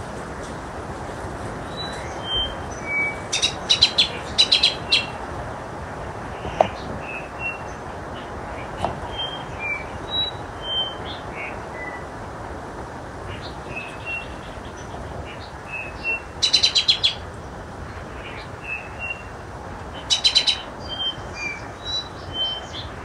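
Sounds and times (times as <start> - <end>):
background hiss: 0.0 - 23.0
birds whistling: 1.7 - 5.2, 9.1 - 12.0, 20.1 - 23.0.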